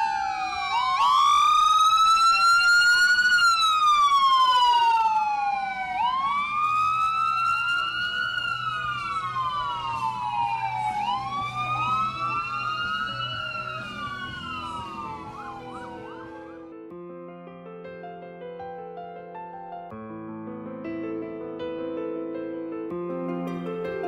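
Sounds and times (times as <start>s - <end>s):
siren yelps: 0.0s - 16.7s
emergency sirens wailing: 0.0s - 16.8s.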